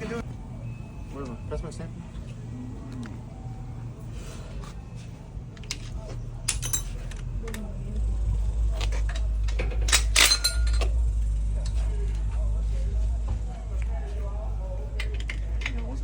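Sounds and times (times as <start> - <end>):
low rumble: 5.2 - 16.0
metal tools clinking and clanking: 5.6 - 7.8, 8.6 - 12.3, 14.9 - 16.0.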